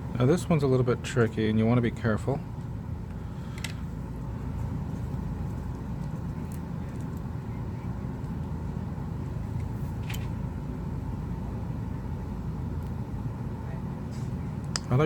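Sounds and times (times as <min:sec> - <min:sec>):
faint hum: 0:00.0 - 0:15.0
low background rumble: 0:00.0 - 0:15.0.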